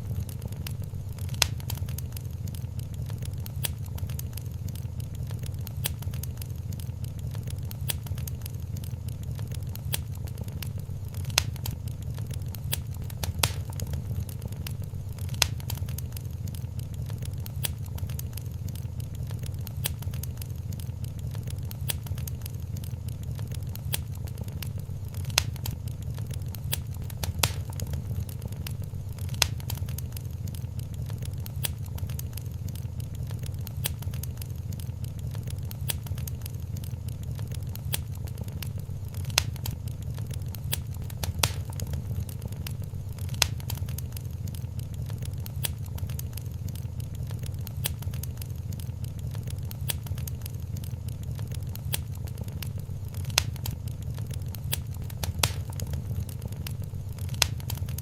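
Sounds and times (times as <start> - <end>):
low rumble of flames: 0.0 - 58.0
wood fire crackling: 0.0 - 58.0.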